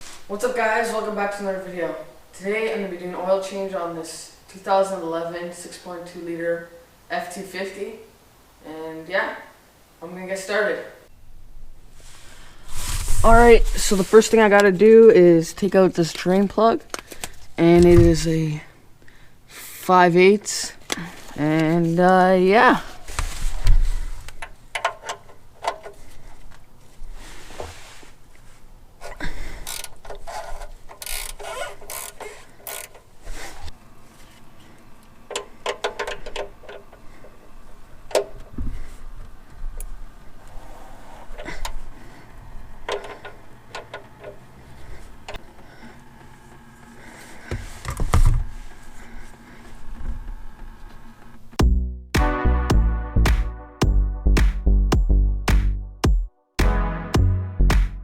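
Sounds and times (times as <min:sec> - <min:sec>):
wrench metallic clicks and clanks: 0:24.4 - 0:26.0, 0:29.6 - 0:33.1, 0:35.3 - 0:37.0.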